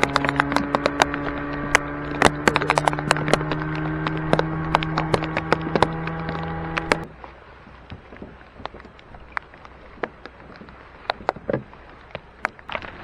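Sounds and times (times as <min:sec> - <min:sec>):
sharp clicks and knocks: 0:00.0 - 0:07.1
outboard motor running: 0:00.0 - 0:13.0.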